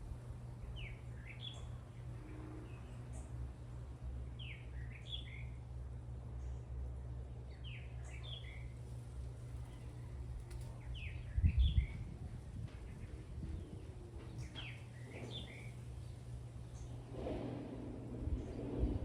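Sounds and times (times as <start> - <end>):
low rumble: 16.9 - 19.0.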